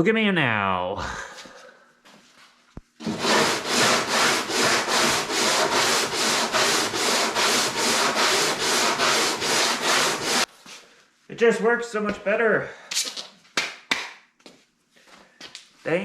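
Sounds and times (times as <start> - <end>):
hand tool scraping wood: 3.0 - 10.5.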